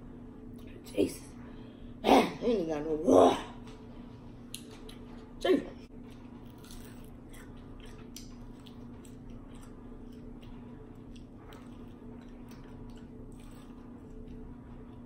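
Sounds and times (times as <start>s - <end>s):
steady low hum: 0.0s - 15.0s
chewing crispy chicken: 6.1s - 15.0s.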